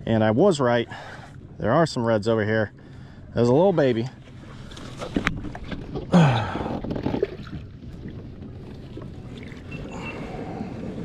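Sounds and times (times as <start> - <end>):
water sloshing and splashing: 3.4 - 11.0.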